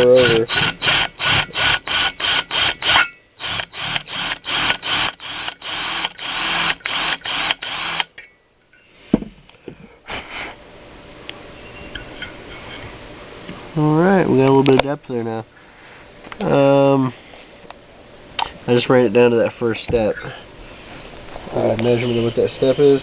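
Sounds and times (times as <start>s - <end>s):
electric drill pulsing: 0.0s - 8.1s.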